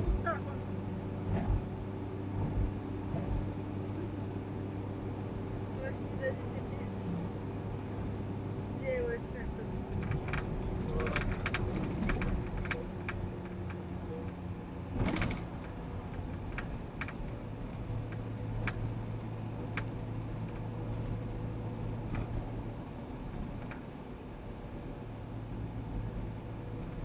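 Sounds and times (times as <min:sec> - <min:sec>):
van engine and road noise: 0:00.0 - 0:27.0
light clicks and rattles: 0:09.9 - 0:21.2.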